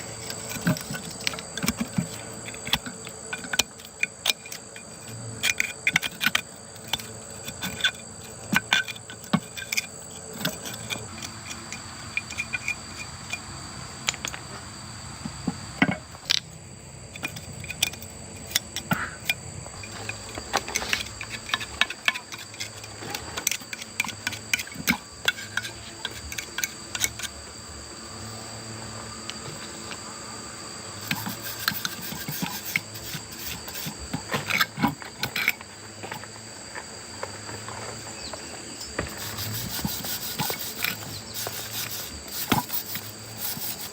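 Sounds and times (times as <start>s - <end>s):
insect drone: 0.0s - 43.9s
clicks and clinks of hand work: 31.0s - 36.3s, 38.8s - 43.9s.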